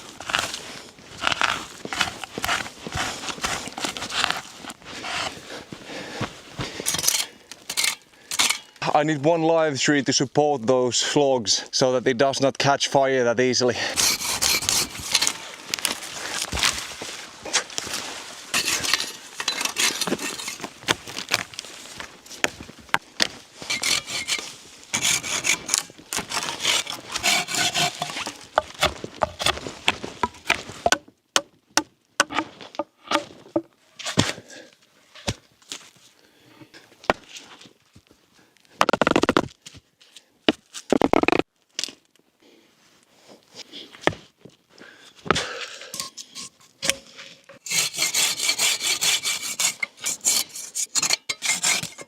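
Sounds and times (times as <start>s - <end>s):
hand saw cutting wood: 1.2s - 5.4s, 14.0s - 15.4s, 18.5s - 20.7s, 23.6s - 29.6s, 47.6s - 52.0s.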